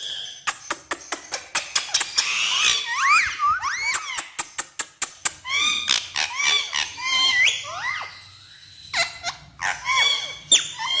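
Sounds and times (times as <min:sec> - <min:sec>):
parrot shrill calls: 0:01.6 - 0:04.4, 0:05.4 - 0:11.0.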